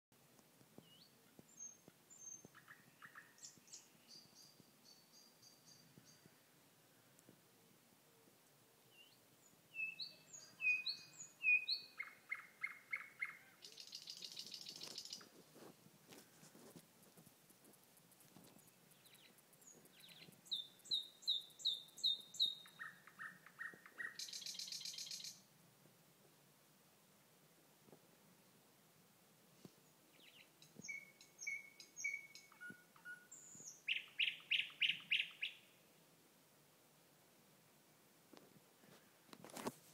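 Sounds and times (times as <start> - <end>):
bird song with trill: 0.8 - 6.4, 8.9 - 15.3, 18.5 - 25.4, 30.1 - 35.7
thrush nightingale singing: 0.8 - 6.5, 8.9 - 15.3, 18.5 - 25.5, 29.8 - 35.8.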